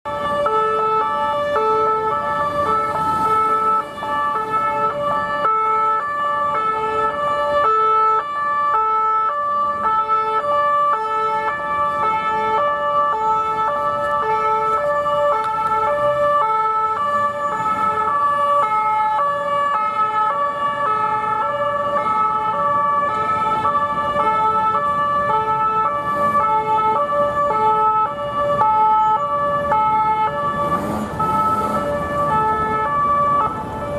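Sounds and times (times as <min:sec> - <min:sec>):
road traffic: 0:00.0 - 0:33.9
two-tone police sirens: 0:00.0 - 0:33.9.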